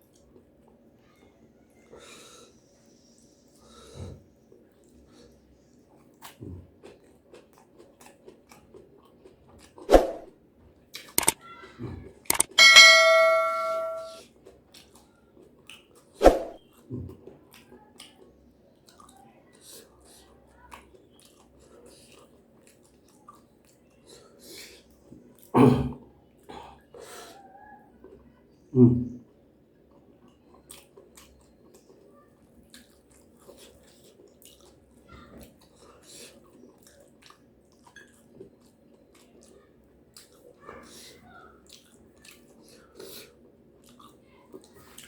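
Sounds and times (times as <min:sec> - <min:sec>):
faint eating noises: 0:00.0 - 0:45.0
person chewing food: 0:05.9 - 0:09.9, 0:11.0 - 0:11.3, 0:20.7 - 0:25.5, 0:29.9 - 0:40.6, 0:41.6 - 0:45.0
tableware ringing when struck: 0:12.4 - 0:14.2.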